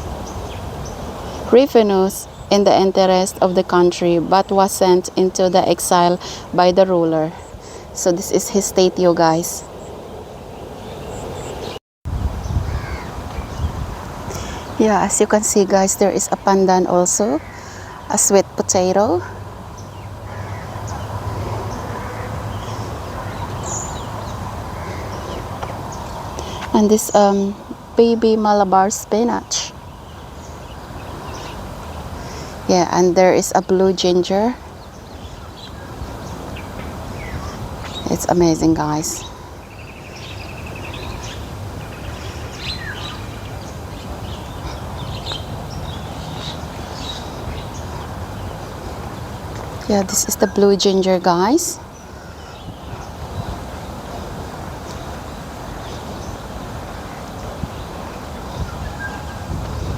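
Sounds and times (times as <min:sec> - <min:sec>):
low background noise: 0:12.5 - 0:59.9.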